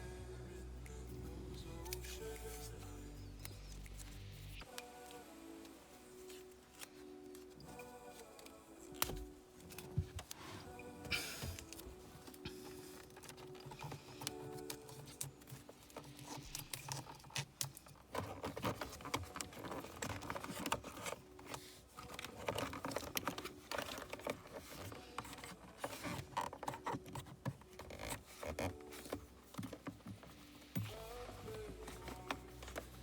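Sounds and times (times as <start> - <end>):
hands handling wiring and plastic trim: 6.2 - 33.0.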